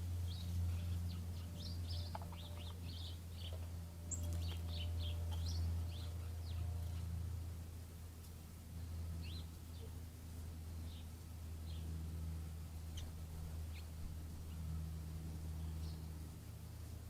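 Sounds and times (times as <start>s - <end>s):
songbirds chirping: 0.0s - 17.0s
steady low hum: 0.0s - 17.0s.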